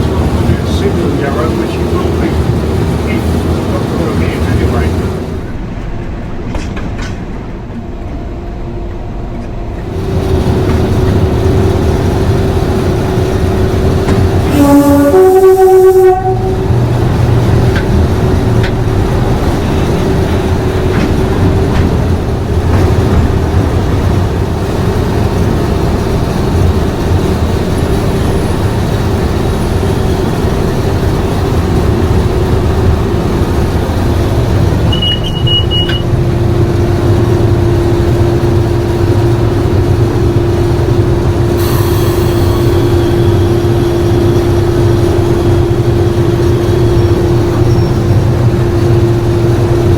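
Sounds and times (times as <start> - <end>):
locomotive diesel engine rumbling: 0.0 - 49.9
rushing hiss: 41.5 - 44.0
high-pitched squeal: 41.5 - 45.8.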